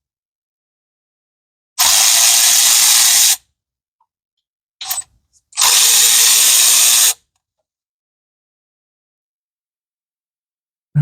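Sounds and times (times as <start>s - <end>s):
power ratchet spinning: 4.8s - 7.2s.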